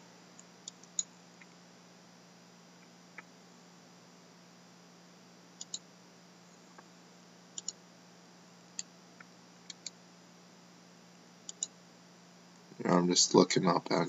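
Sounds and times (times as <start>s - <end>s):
faint steady hum: 0.0s - 14.0s
computer mouse clicking: 0.4s - 1.5s, 5.6s - 5.8s, 7.6s - 7.8s, 8.8s - 10.0s, 11.5s - 11.8s.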